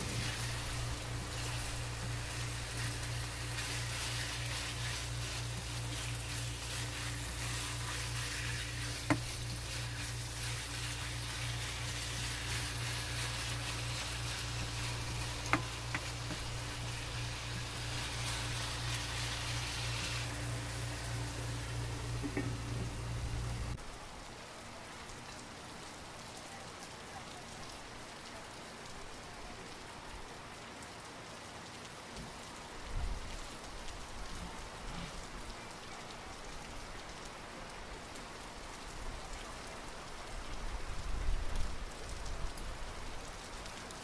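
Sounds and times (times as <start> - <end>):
spatula stirring: 0.0 - 23.0
meat sizzling in a wok: 0.0 - 23.8
steady low hum: 0.0 - 23.8.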